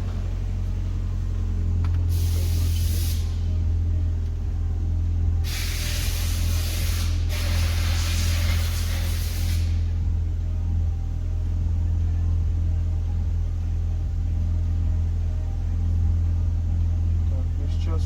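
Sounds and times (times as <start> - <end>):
car engine hum: 0.0 - 18.0
hiss: 2.1 - 3.5, 5.4 - 9.9.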